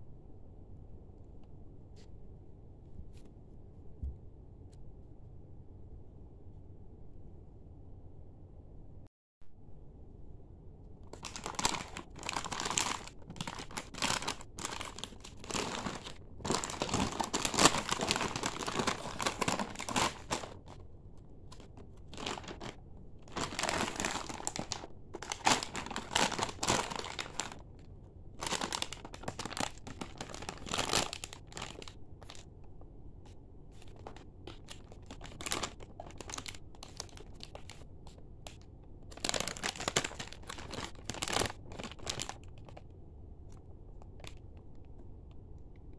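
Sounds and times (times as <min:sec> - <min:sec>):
plastic pouches crinkling: 0:11.1 - 0:20.8, 0:21.5 - 0:27.7, 0:28.4 - 0:32.5, 0:33.8 - 0:42.8, 0:44.0 - 0:44.5.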